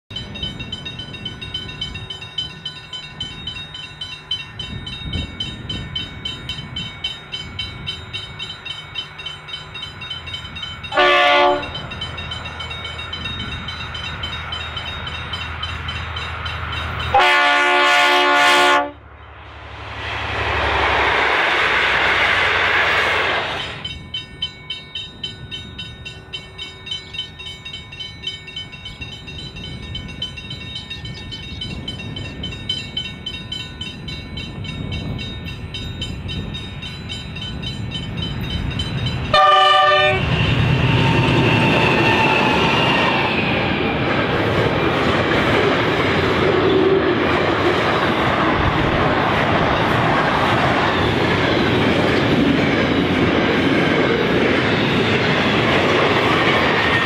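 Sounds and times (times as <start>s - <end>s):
diesel locomotive engine drone: 0.1s - 57.0s
train rushing past: 0.1s - 57.0s
train horn blasts: 10.9s - 11.8s, 17.1s - 19.0s, 39.3s - 43.3s.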